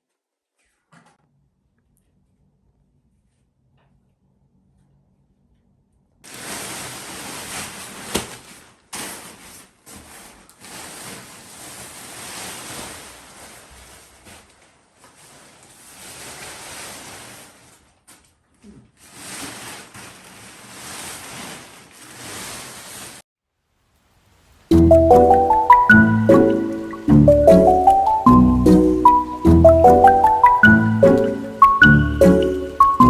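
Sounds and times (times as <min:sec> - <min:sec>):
tent fabric rustling: 0:06.3 - 0:23.2.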